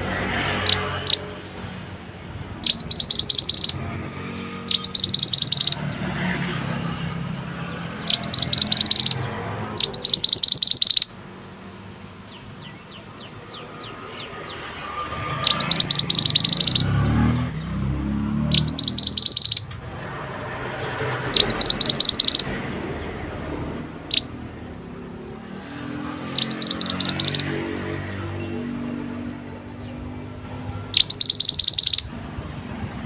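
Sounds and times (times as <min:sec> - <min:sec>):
bird chattering: 0:00.6 - 0:01.3, 0:02.6 - 0:03.9, 0:04.6 - 0:05.9, 0:07.9 - 0:12.0, 0:15.4 - 0:16.9, 0:18.5 - 0:19.8, 0:20.8 - 0:22.6, 0:24.1 - 0:24.4, 0:26.3 - 0:27.6, 0:30.8 - 0:32.2.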